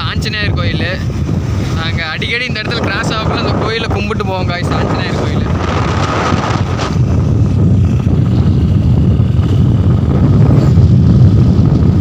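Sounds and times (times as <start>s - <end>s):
road rumble: 0.0s - 12.0s
wind buffeting microphone: 0.0s - 12.0s
motorcycle engine: 5.5s - 12.0s.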